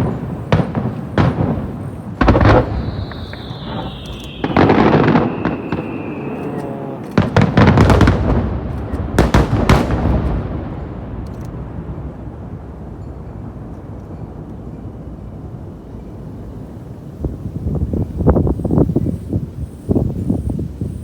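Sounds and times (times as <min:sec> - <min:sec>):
falling firework whistle: 0:00.0 - 0:11.0
firework shell bursts: 0:00.0 - 0:11.8
echoing booms: 0:00.0 - 0:14.0.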